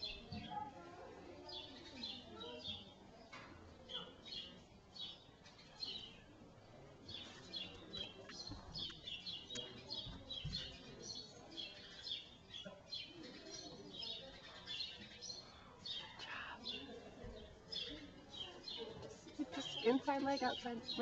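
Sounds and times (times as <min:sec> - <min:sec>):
small birds chirping: 0:00.0 - 0:00.7, 0:01.4 - 0:21.0.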